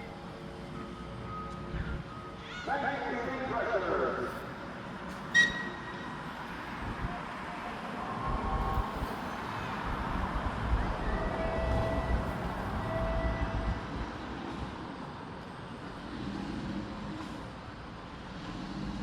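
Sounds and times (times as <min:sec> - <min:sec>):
train running with hiss and rumble: 0:03.1 - 0:19.0.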